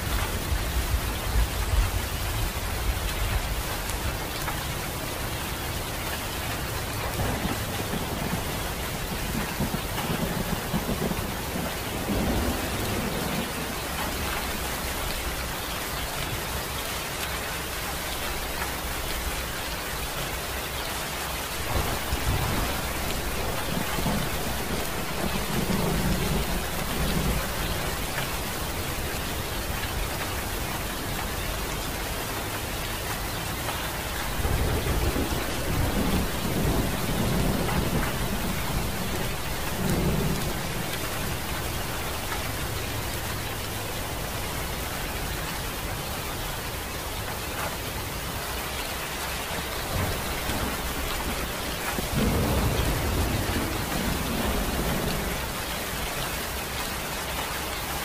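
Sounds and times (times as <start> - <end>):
heavy rain falling: 0.0 - 58.0
thunder rolling: 7.1 - 14.6, 21.6 - 31.7, 34.1 - 44.4, 49.8 - 55.5.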